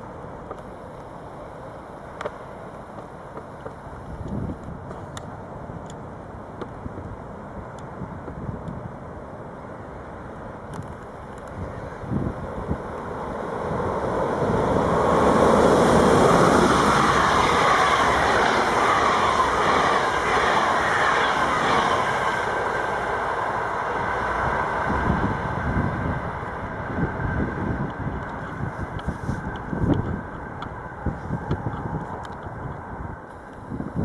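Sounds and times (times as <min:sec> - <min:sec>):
train passing: 0:00.0 - 0:34.0
running gear whine: 0:11.7 - 0:33.6.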